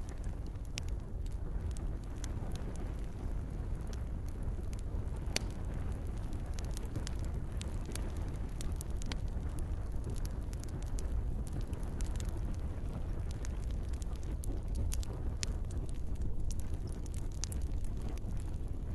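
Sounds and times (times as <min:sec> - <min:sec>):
campfire crackling: 0:00.0 - 0:18.9.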